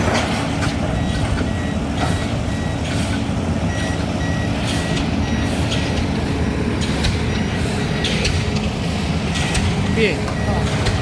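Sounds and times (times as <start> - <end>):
diesel pile-driving hammer strokes: 0.0 - 11.0
repeating high beep: 3.7 - 5.6, 9.4 - 11.0.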